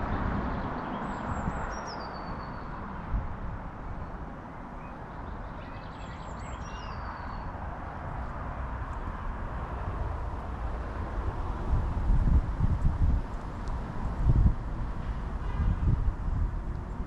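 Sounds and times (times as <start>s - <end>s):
bird chirping and trilling: 4.8s - 7.4s.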